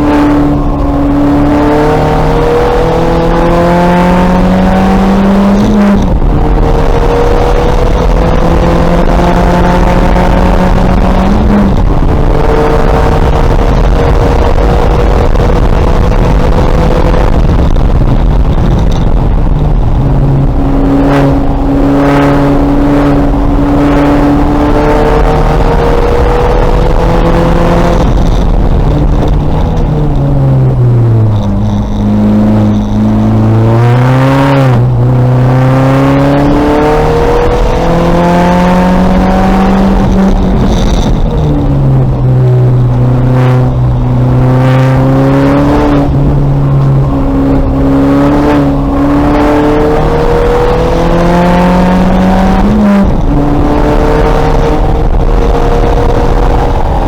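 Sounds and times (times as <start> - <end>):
race car engine at full throttle: 0.0 - 57.0.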